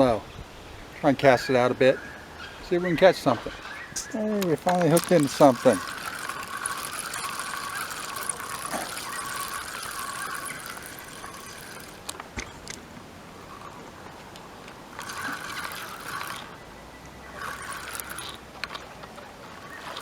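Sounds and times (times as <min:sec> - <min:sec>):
water splashing: 0:04.0 - 0:12.1
fishing reel whirring: 0:04.0 - 0:20.0.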